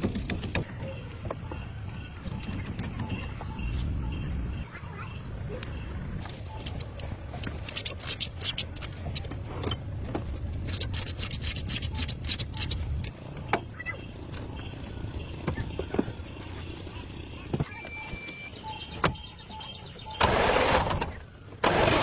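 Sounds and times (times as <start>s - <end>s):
scraping strokes: 10.2s - 12.9s.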